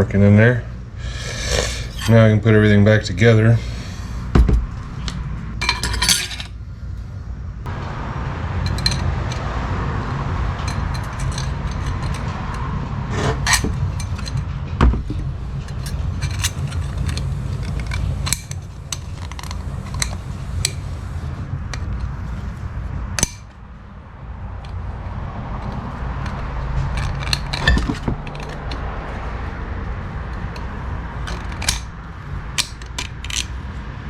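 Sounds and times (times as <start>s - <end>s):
steady low hum: 0.0s - 34.0s
small metal parts clinking: 5.6s - 6.6s, 8.6s - 9.5s, 10.6s - 20.9s, 23.2s - 23.6s, 25.6s - 29.2s, 30.3s - 33.6s.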